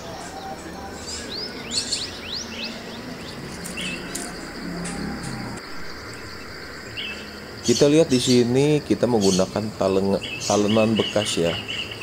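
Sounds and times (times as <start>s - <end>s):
small birds chirping: 0.0s - 12.0s
high insect buzz: 1.9s - 9.0s.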